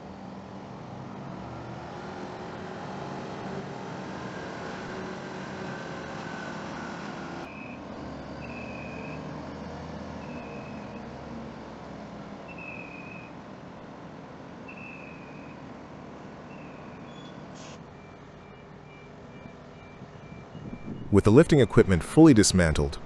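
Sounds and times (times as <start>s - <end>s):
reversing alarm beeping: 5.7s - 9.6s, 10.2s - 11.1s, 14.7s - 15.7s, 16.5s - 21.2s
heavy vehicle engine running: 15.6s - 23.0s.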